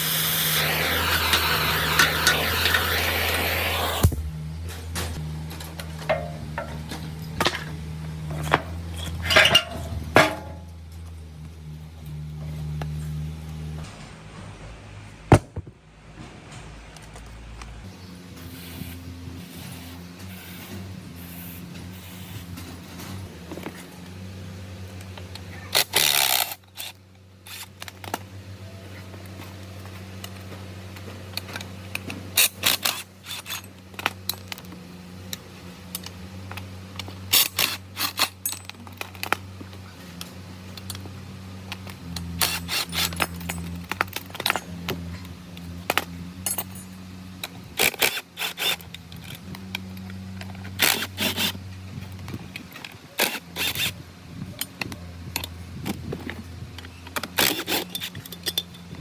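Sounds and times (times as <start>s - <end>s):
steady low hum: 0.0s - 14.0s
metal parts clinking and scraping: 4.6s - 11.2s, 25.3s - 28.3s, 29.0s - 54.0s, 54.6s - 59.0s.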